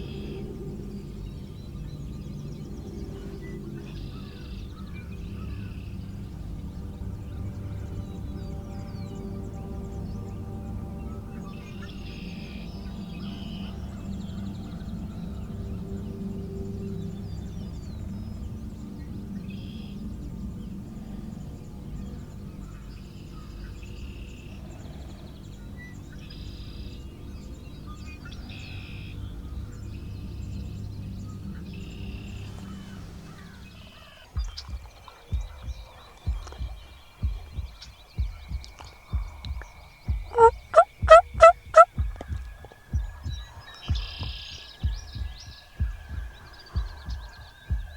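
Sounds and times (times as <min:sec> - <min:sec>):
low background rumble: 0:00.0 - 0:47.9
songbirds singing: 0:00.0 - 0:47.9
heartbeat thumping: 0:34.4 - 0:47.9
wild turkey gobbling: 0:40.3 - 0:41.9.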